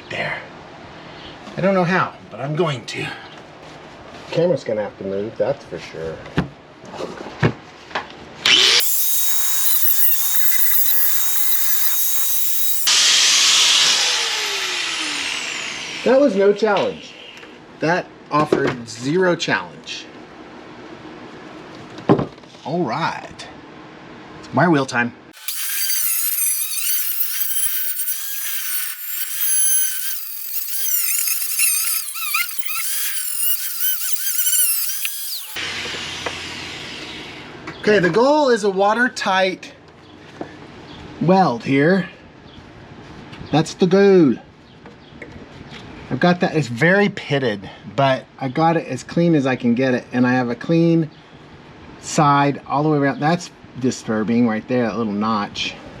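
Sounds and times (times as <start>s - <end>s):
grinder grinding metal: 8.6s - 16.6s, 25.4s - 35.6s.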